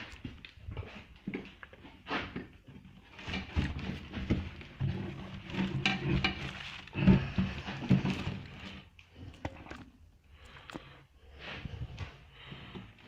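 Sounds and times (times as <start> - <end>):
cardboard box rustling and scraping: 3.2 - 8.8.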